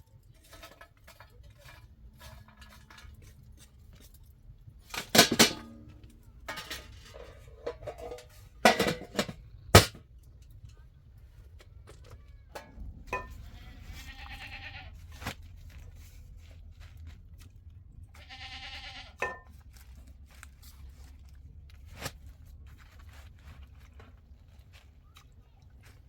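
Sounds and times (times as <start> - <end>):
livestock bleating: 13.4 - 15.0, 18.2 - 19.2.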